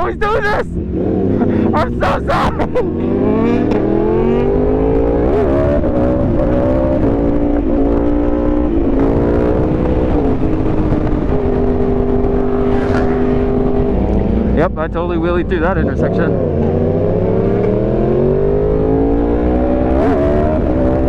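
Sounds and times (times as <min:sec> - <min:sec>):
motorcycle accelerating hard: 0:00.0 - 0:21.0
wind rush: 0:03.8 - 0:17.5.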